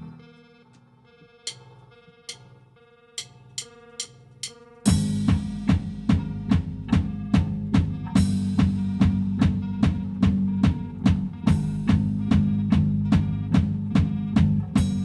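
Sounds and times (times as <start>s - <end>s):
cymbal taps: 1.5s - 1.7s, 2.3s - 2.5s, 3.2s - 4.6s
drum kit playing: 3.2s - 15.0s
electric bass line: 4.9s - 15.0s.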